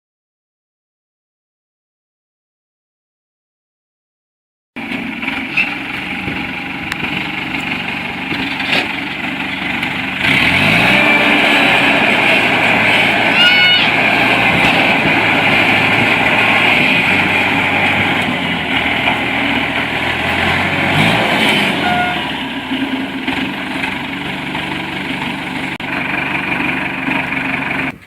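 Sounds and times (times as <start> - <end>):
diesel truck engine running: 4.8 - 28.0
short high squeal: 13.2 - 14.8, 21.5 - 22.4.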